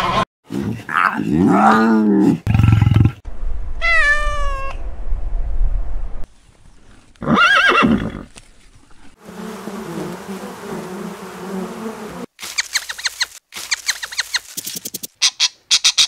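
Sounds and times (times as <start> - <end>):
honeybees buzzing: 9.2 - 12.6
rapid bird squawks: 15.2 - 16.0.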